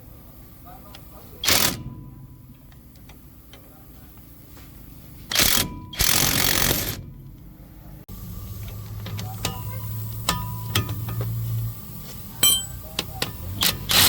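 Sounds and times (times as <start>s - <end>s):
harsh workshop tool noise: 1.4s - 2.0s, 5.2s - 7.1s, 8.6s - 14.0s.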